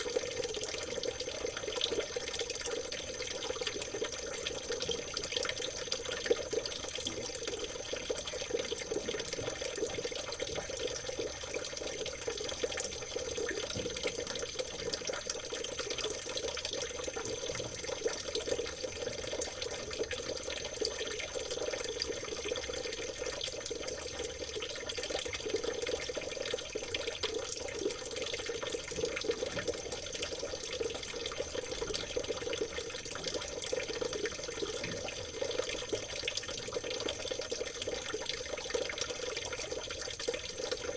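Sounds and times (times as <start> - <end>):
stream babbling over stones: 0.0 - 1.6, 24.7 - 40.9.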